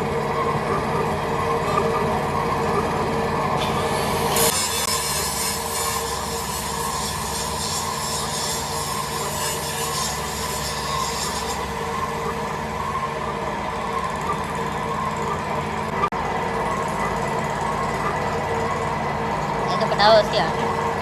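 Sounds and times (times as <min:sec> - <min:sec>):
metalworking machinery humming: 0:00.0 - 0:21.0
hissing rasp of metal cutting: 0:03.6 - 0:12.5.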